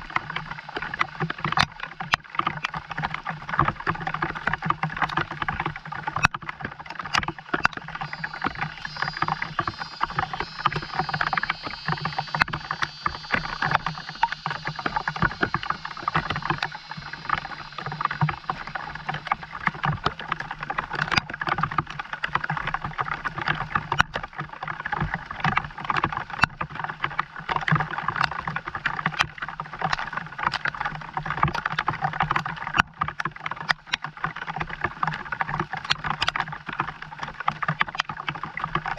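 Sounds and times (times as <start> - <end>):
constant low hum: 0.0 - 22.2
rain pattering: 0.0 - 25.1.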